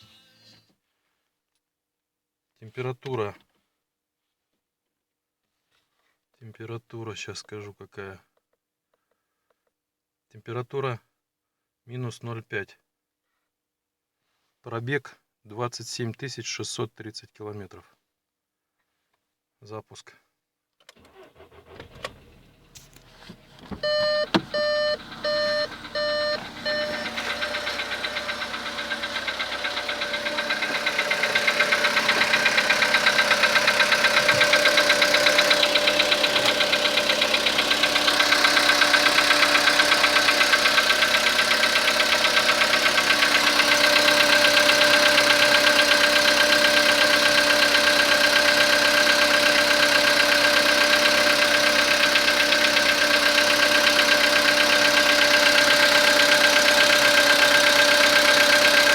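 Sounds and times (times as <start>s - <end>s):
car engine idling: 22.2s - 58.9s
fast ticking engine knock: 24.5s - 58.9s.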